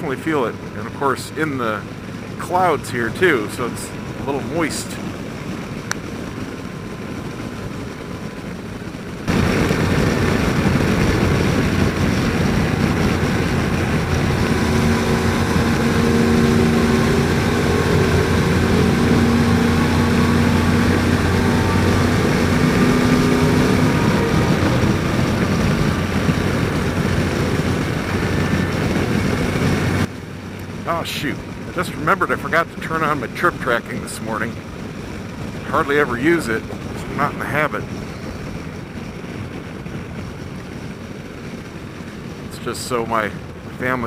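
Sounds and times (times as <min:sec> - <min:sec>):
motorcycle engine humming: 0:00.0 - 0:44.0
wind rushing: 0:01.6 - 0:30.1.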